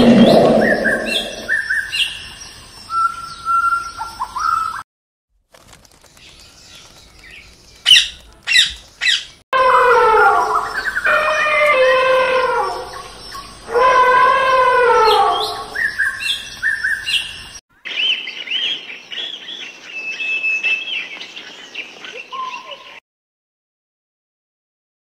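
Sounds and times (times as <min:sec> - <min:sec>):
birds chirping: 0:00.0 - 0:04.8, 0:06.0 - 0:23.0
elephant trumpeting: 0:09.6 - 0:13.1, 0:13.7 - 0:15.8.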